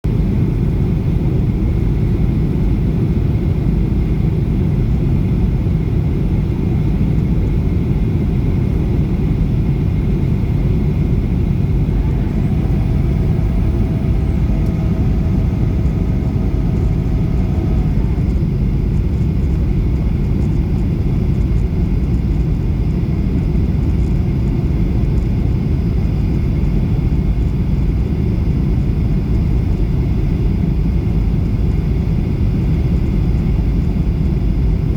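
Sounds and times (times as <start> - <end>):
airplane low rumble: 0.0 - 34.9
faint high hum: 6.6 - 30.4.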